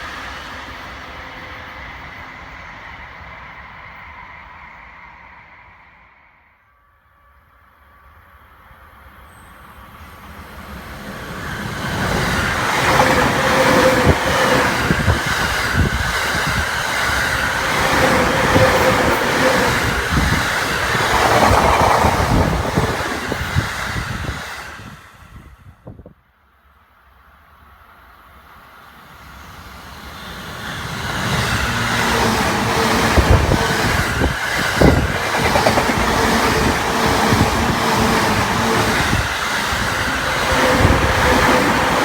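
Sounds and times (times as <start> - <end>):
electric train passing: 0.0 - 25.7, 27.0 - 42.0
train motor hum: 17.6 - 24.3.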